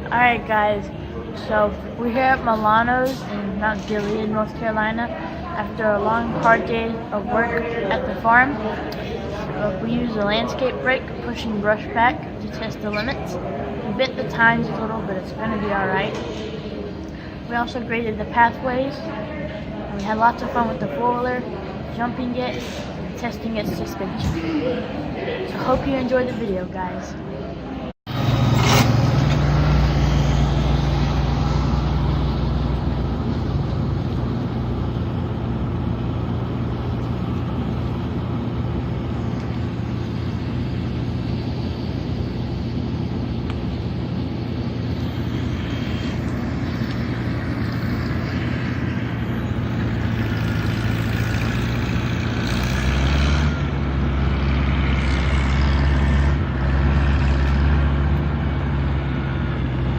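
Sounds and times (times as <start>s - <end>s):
vehicle engine running: 28.1s - 59.9s.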